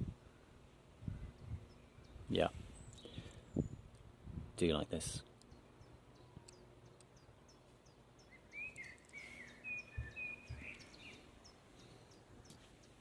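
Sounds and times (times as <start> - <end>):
whistled bird chirps: 8.2 - 11.2
soft low thumps: 9.9 - 10.9.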